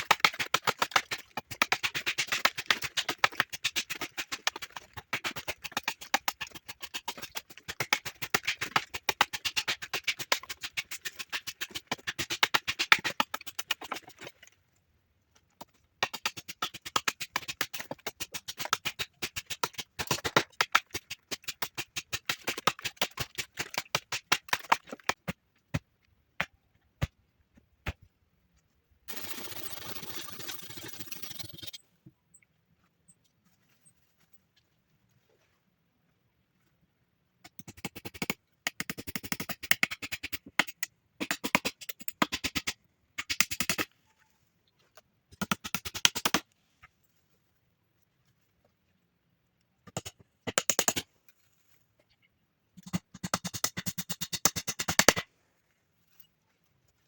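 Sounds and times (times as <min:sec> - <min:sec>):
rapid sharp clicks: 0:00.0 - 0:14.2.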